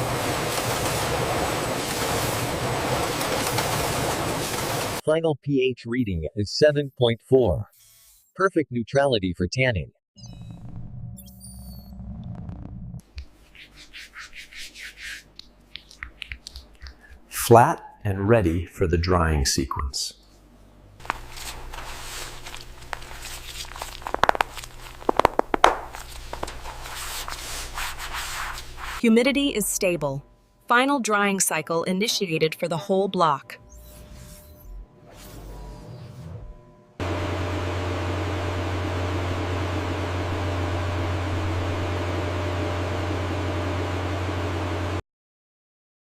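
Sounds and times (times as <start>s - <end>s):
machine hum with hiss: 0.0s - 5.0s, 33.6s - 45.0s
low machine hum: 15.4s - 45.0s.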